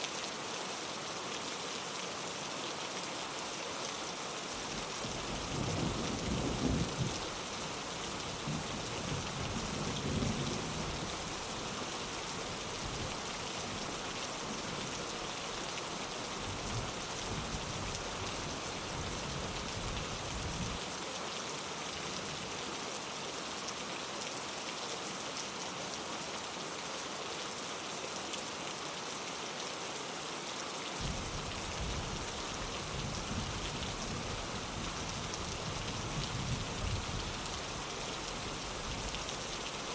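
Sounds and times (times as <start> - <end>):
rain falling on a window: 0.0 - 39.9
low thunder rumbling: 5.4 - 7.2.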